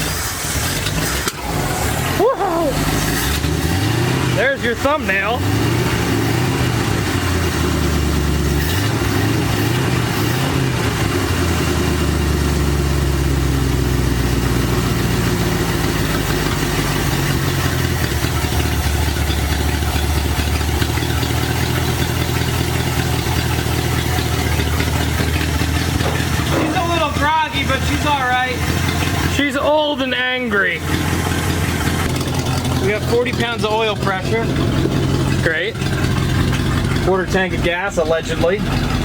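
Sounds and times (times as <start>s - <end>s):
engine revving and idling: 0.0s - 39.0s.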